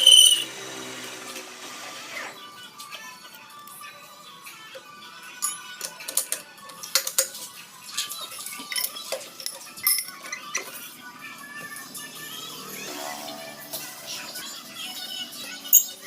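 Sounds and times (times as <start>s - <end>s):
background music: 0.0s - 16.0s
metal clinking and clanking: 5.4s - 10.8s.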